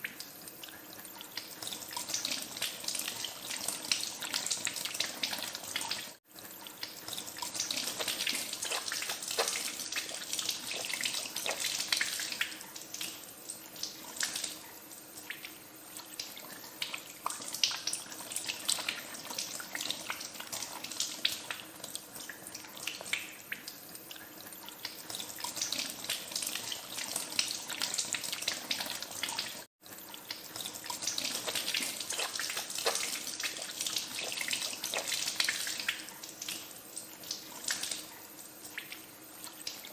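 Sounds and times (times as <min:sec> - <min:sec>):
hands washing under water: 0:07.0 - 0:13.2, 0:30.5 - 0:38.1.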